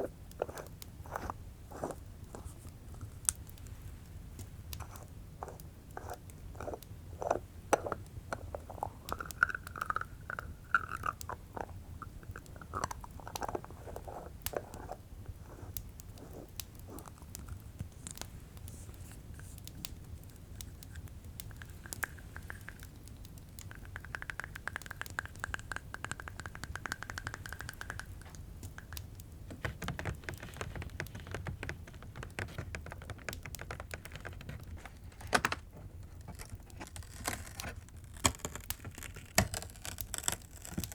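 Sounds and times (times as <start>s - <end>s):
jar lid twisting and scraping: 0.0s - 3.2s, 4.8s - 18.2s, 23.7s - 40.9s
fireplace crackling: 0.0s - 24.4s.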